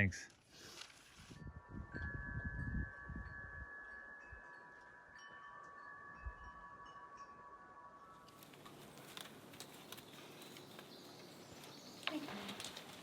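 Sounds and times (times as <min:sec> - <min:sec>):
chime tones ringing: 0:01.5 - 0:08.8.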